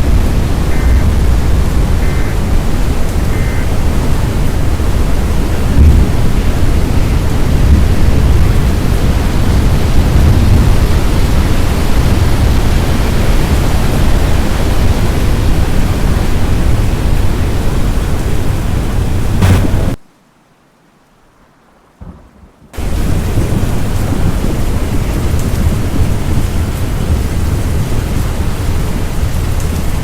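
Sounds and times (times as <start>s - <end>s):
rain: 0.0s - 30.0s
wind: 0.0s - 30.0s
brief knock: 19.4s - 19.9s.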